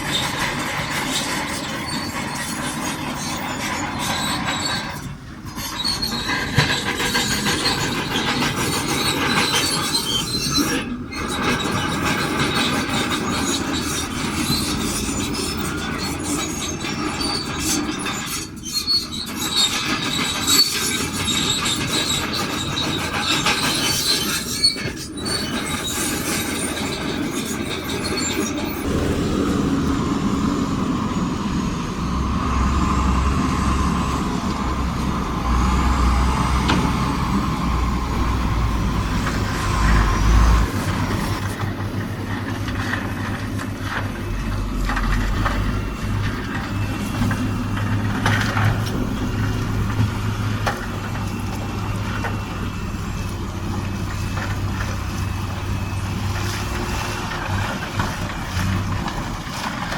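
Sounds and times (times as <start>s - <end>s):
bulldozer engine rumble: 0.0s - 59.9s
bulldozer tracks squealing and clanking: 0.0s - 59.9s
held whine: 27.6s - 58.4s.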